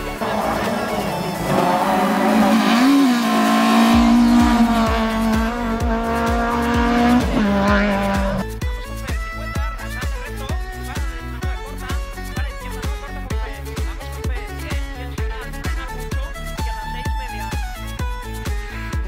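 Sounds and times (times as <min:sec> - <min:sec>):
rally car engine revving: 0:00.0 - 0:08.5
background music with steady beat: 0:00.0 - 0:19.0.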